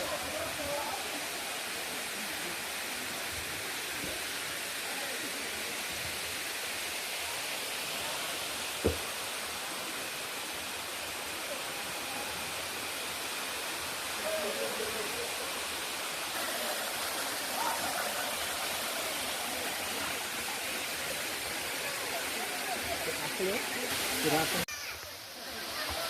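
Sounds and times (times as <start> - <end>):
water cascading over waterfall: 0.0 - 26.0
brief thump: 8.8 - 9.0.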